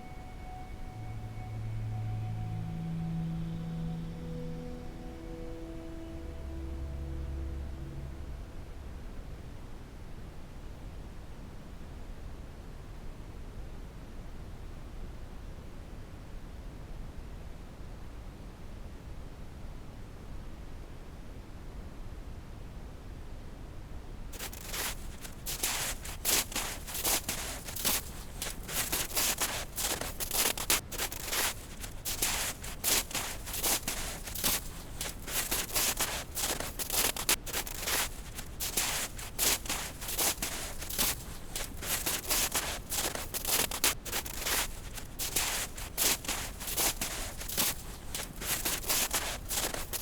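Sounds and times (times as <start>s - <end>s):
continuous noise rush: 0.0s - 50.0s
footsteps crunching through snow: 24.4s - 50.0s.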